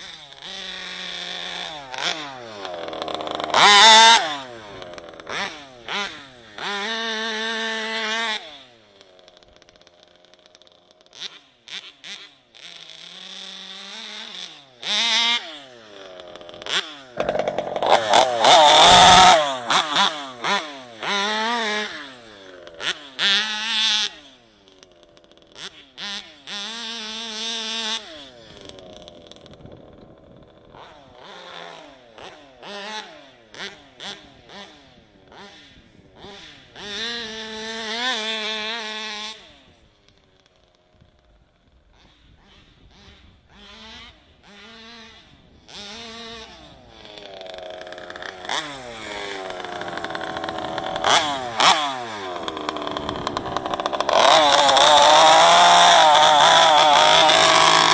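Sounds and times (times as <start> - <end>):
two-stroke engine revving: 0.0 - 57.9.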